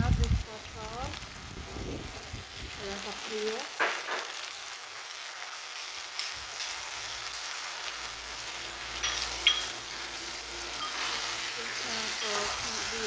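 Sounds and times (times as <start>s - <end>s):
food sizzling in a pot: 0.0s - 13.0s
metal ladle stirring: 8.5s - 13.0s
metal spoon clinks: 9.0s - 9.8s.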